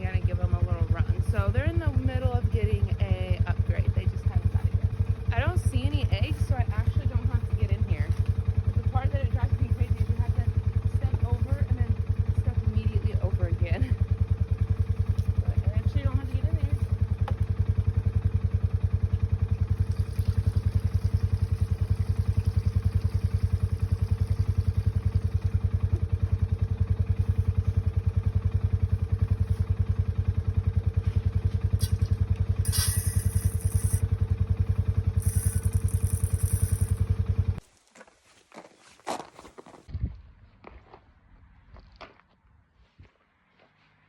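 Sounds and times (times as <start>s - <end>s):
small engine running: 0.0s - 37.6s.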